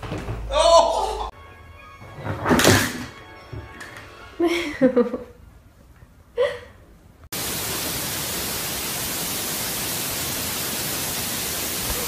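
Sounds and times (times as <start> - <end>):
steady static hiss: 6.9 - 12.0.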